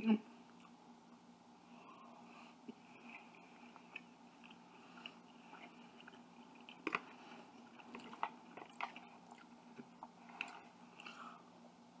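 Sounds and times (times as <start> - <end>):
person chewing food: 1.9 - 11.4.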